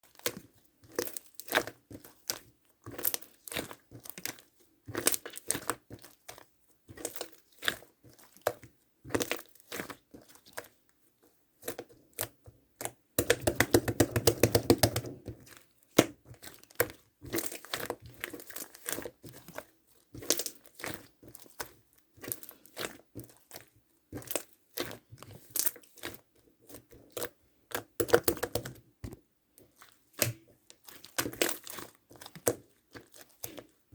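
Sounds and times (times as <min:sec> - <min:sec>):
slime crackling and popping: 0:11.6 - 0:33.8.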